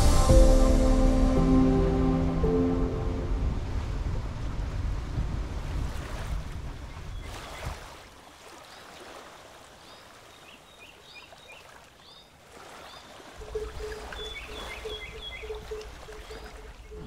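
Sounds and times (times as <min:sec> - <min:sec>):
wind: 0:00.0 - 0:17.0
water washing: 0:12.4 - 0:17.0
small bird chirping: 0:13.5 - 0:17.0.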